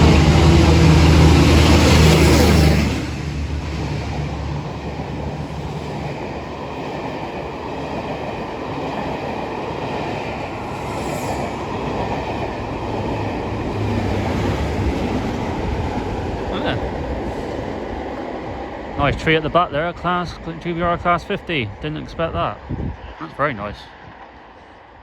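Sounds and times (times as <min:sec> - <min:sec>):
diesel locomotive engine passing: 0:00.0 - 0:25.0
second locomotive engine hum: 0:00.0 - 0:25.0
coaches rumble and wheel clatter: 0:11.4 - 0:24.4.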